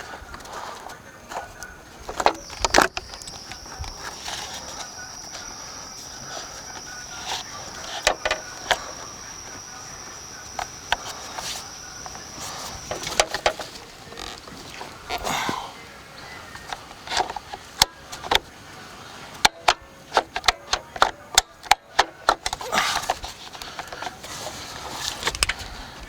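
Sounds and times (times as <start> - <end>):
clicks and knocks of plastic trim: 0.0 - 15.2, 19.3 - 24.3
steady high-pitched tone: 2.1 - 13.8.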